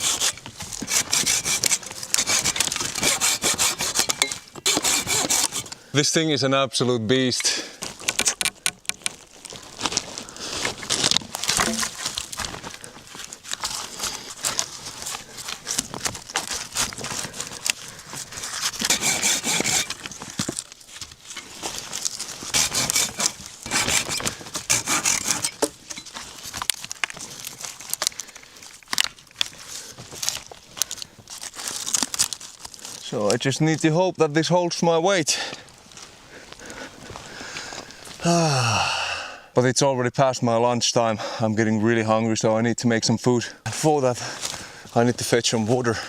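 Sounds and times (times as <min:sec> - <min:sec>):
hand saw cutting wood: 0:00.0 - 0:05.8, 0:18.5 - 0:20.0, 0:22.5 - 0:25.8.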